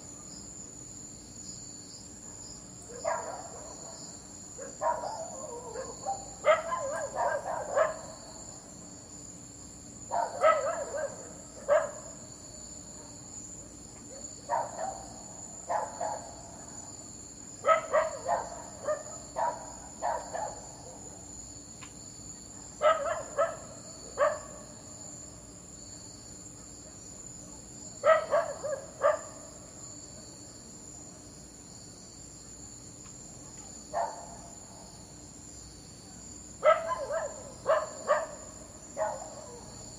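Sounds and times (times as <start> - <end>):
insects chirring: 0.0 - 39.9
dog barking: 2.2 - 4.0, 4.6 - 8.2, 10.1 - 12.2, 14.1 - 16.5, 17.6 - 21.1, 22.6 - 24.7, 28.0 - 29.5, 33.9 - 34.4, 36.6 - 39.8.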